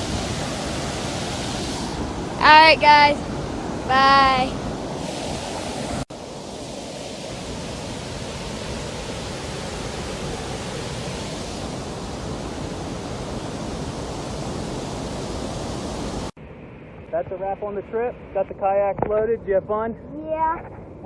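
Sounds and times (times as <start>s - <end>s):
water rushing over a dam: 0.0s - 16.3s.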